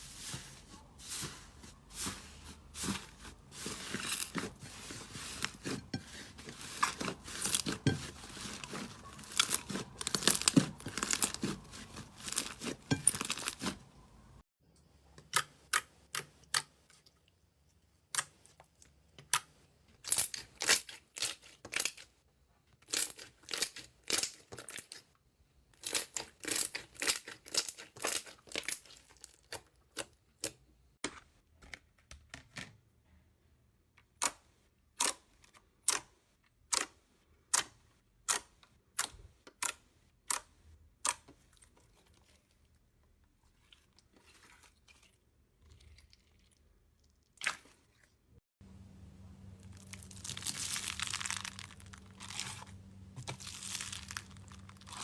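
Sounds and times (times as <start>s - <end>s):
slime popping and crackling: 49.6s - 52.6s, 53.3s - 55.0s.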